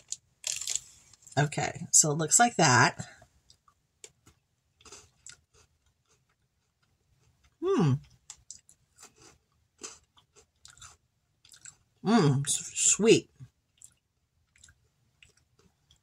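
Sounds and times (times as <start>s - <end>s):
crunching and chewing biscuit: 0.0s - 1.4s, 3.2s - 12.0s, 13.4s - 16.0s.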